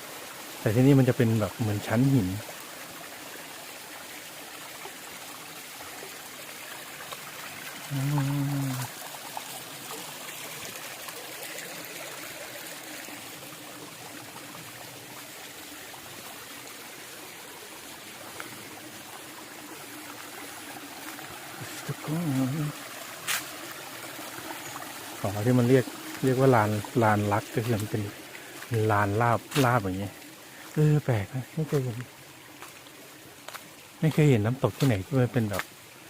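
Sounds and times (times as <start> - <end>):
water trickling over rocks: 0.0 - 36.0
person humming: 7.9 - 8.9.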